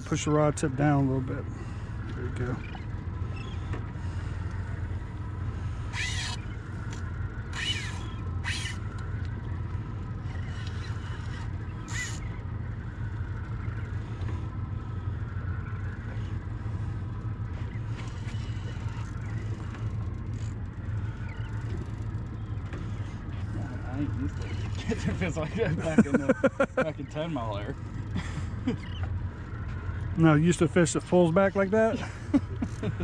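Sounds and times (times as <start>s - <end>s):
boat rumbling at sea: 0.0s - 33.0s
faint steady tone: 0.0s - 33.0s
high sliding squeals: 7.5s - 8.8s.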